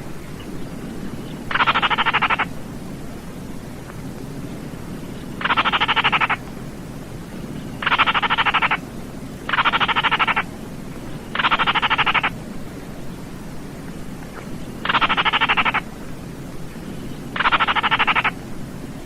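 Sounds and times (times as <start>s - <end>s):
low background hiss: 0.0s - 19.0s
bird rattling trills: 0.4s - 2.5s, 5.1s - 6.4s, 7.4s - 8.8s, 9.4s - 12.4s, 14.4s - 15.8s, 16.8s - 18.4s.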